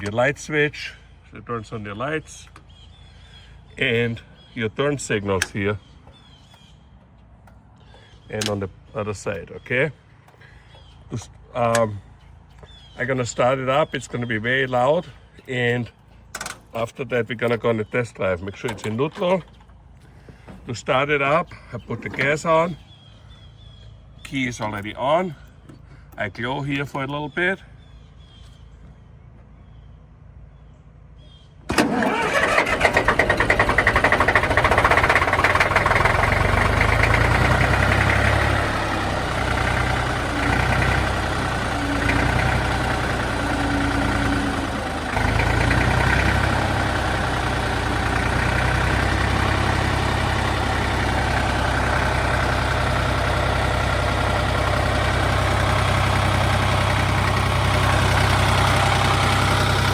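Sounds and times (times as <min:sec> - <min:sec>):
tractor diesel engine starting: 0:12.7 - 0:23.0, 0:31.7 - 0:59.9.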